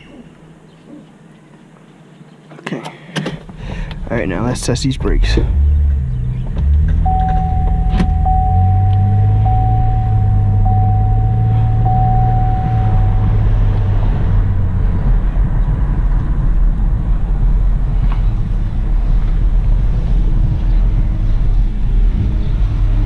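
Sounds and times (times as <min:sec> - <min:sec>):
car engine and road rumble: 0:00.0 - 0:23.0
steady high tone: 0:07.1 - 0:14.5.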